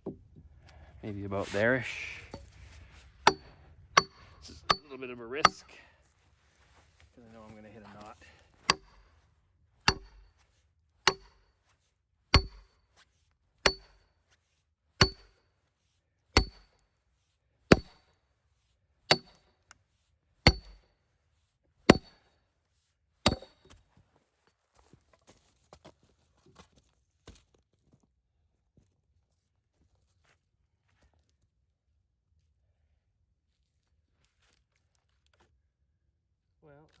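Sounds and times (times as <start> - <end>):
hammer striking steel wedge: 3.3 - 5.7, 8.7 - 9.0, 9.9 - 10.2, 11.1 - 11.4, 12.4 - 12.7, 13.6 - 14.0, 15.0 - 15.4, 16.4 - 16.7, 17.7 - 18.0, 19.1 - 19.4, 20.5 - 20.8, 21.9 - 22.2, 23.3 - 23.8.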